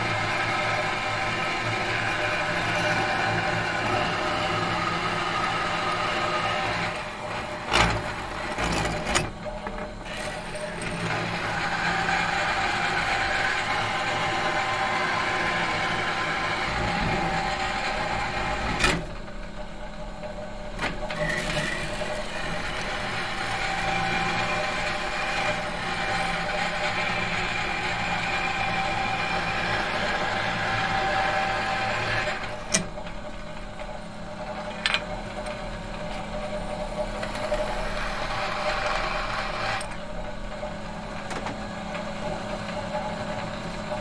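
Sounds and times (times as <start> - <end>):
machine motor running: 21.0 - 44.0.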